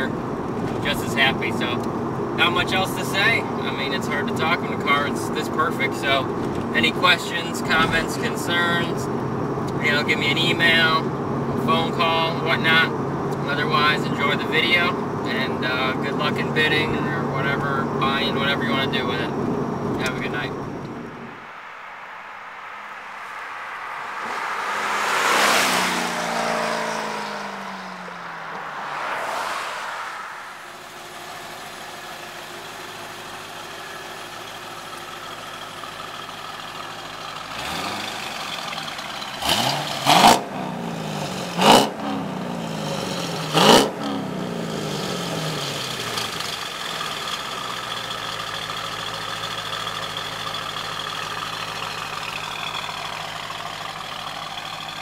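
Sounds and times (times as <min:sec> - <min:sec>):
car engine idling and revving: 0:00.0 - 0:55.0
car driving past at speed: 0:22.6 - 0:31.7.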